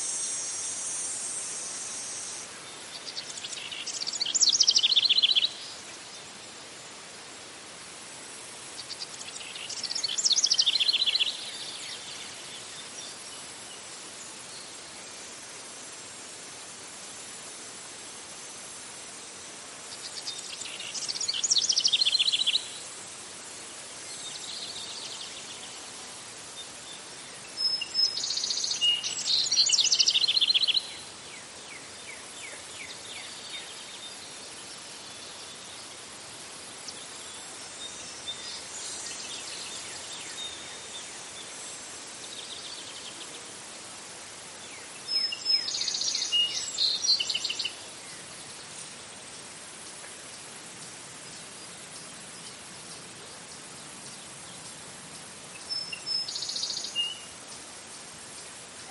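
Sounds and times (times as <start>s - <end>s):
faint bird chirps: 0.0s - 6.4s, 8.7s - 13.8s, 19.8s - 22.9s, 24.0s - 41.6s, 44.6s - 49.0s, 49.8s - 58.9s
insect hiss: 0.0s - 58.9s.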